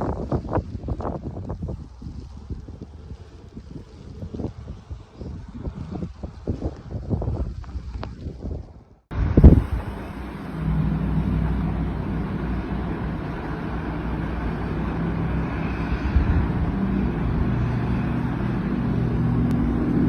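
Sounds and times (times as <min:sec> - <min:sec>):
motor vehicle engine hum: 0:00.0 - 0:20.0
rushing noise: 0:09.1 - 0:20.0.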